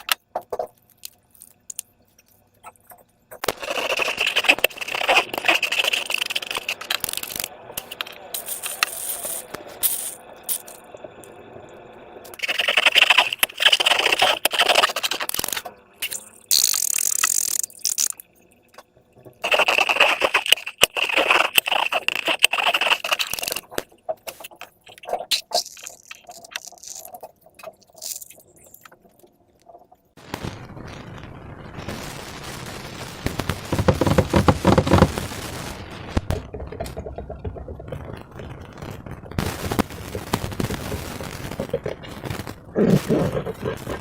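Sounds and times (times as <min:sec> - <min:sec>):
small clicks and crackles: 0:00.0 - 0:11.4, 0:12.2 - 0:30.5, 0:33.2 - 0:44.0
slime and balloons rubbing: 0:03.5 - 0:10.2, 0:19.4 - 0:27.2, 0:33.3 - 0:35.3, 0:36.3 - 0:44.0.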